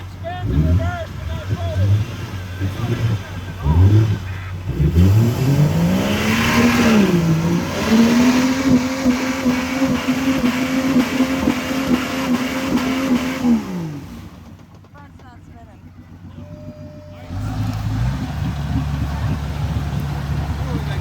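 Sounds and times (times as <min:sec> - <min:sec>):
truck engine revving hard: 0:00.0 - 0:14.6, 0:15.9 - 0:21.0.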